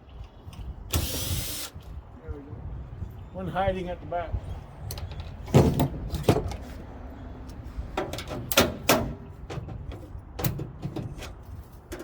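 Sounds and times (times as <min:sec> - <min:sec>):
knocks and clatter of machine parts: 0:04.9 - 0:06.6, 0:08.0 - 0:12.0.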